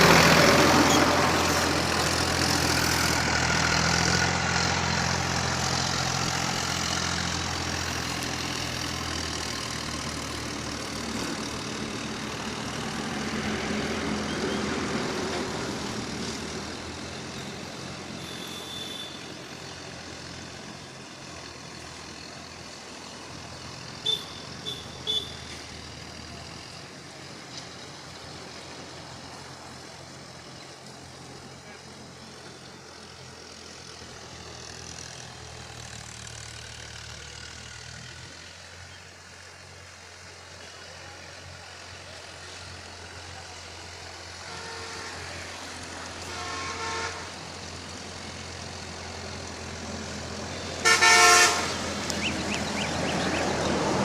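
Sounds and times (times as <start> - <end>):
tractor engine humming: 0.0 - 54.0
horn toots: 18.2 - 19.3, 24.0 - 25.6, 44.4 - 45.5, 46.2 - 47.4, 50.8 - 51.9.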